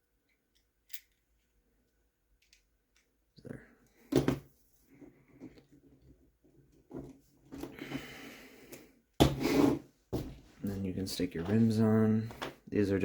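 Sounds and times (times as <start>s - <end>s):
small plastic parts clicking: 0.3s - 1.5s, 2.4s - 3.2s.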